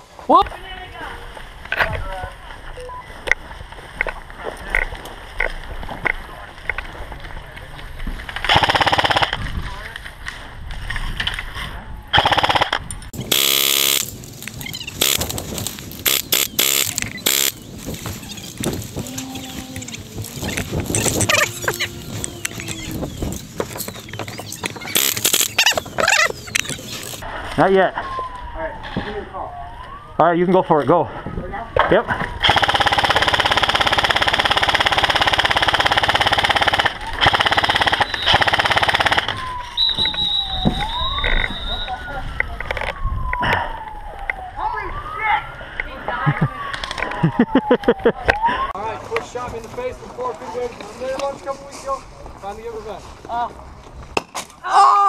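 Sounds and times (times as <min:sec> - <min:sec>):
airsoft gun full-auto bursts: 0:08.5 - 0:09.4, 0:12.2 - 0:14.1, 0:15.0 - 0:15.2, 0:16.0 - 0:17.6, 0:32.4 - 0:39.4
whistling tone: 0:38.0 - 0:38.5, 0:39.4 - 0:42.2.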